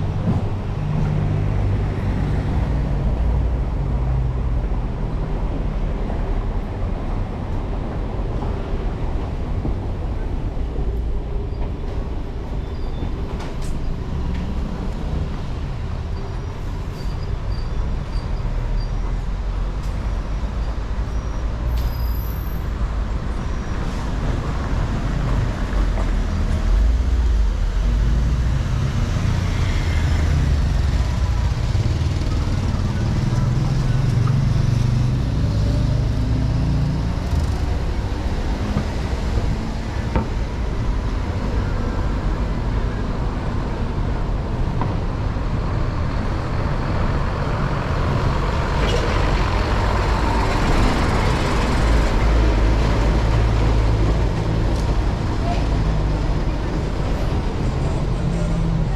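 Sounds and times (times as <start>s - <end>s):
vehicle engines running: 24.1s - 58.9s.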